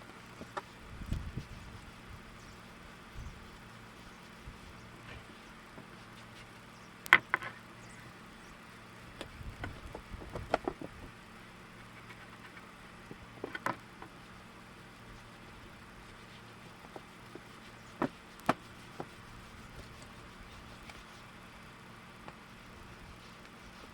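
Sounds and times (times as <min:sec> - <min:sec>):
faint steady hum: 0:00.0 - 0:23.9
knocks of handling wooden boards: 0:18.0 - 0:19.1.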